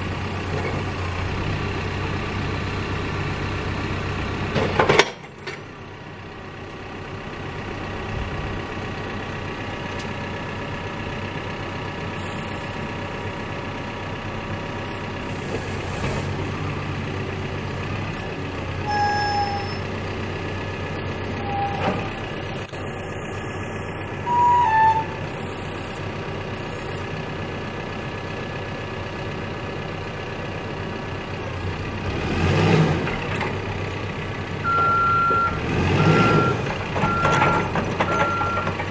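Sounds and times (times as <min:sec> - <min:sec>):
diesel engine running: 0:00.0 - 0:38.9
short high tones: 0:18.9 - 0:19.8, 0:24.2 - 0:25.6.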